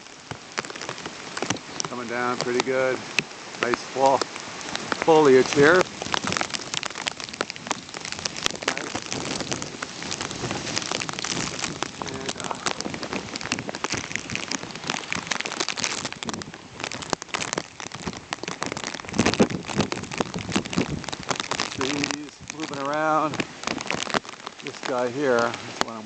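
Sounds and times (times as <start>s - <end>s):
heavy rain: 0.0s - 26.0s
raindrops ticking on plastic: 0.0s - 26.0s.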